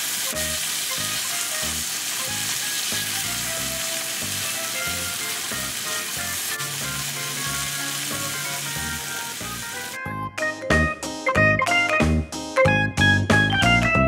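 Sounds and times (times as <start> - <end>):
stir fry sizzling in a wok: 0.0 - 10.0
light background music: 0.1 - 14.0.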